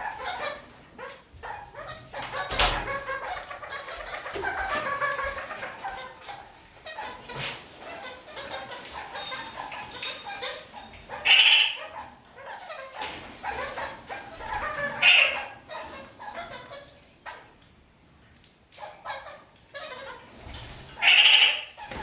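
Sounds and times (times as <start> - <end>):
parakeets chattering: 0.0 - 17.6, 20.9 - 22.0
loud harsh parakeet calls: 11.2 - 12.0, 21.0 - 22.0.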